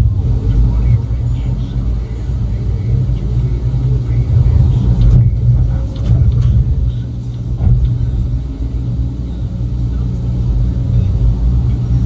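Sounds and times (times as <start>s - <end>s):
heavy machinery engine rumbling: 0.0s - 12.0s
knocks and clatters: 4.3s - 9.1s.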